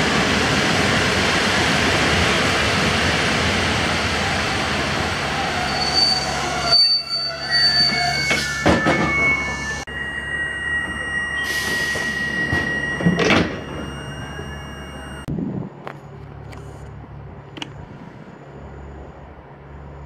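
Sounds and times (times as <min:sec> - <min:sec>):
train brakes squealing: 0:04.2 - 0:15.3.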